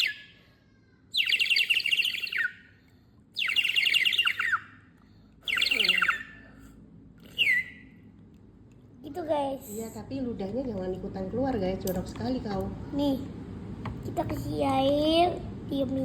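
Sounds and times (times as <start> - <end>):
water bird whistle warbling: 0.0 - 0.3, 1.2 - 2.7, 3.4 - 4.8, 5.5 - 6.5, 7.3 - 7.9.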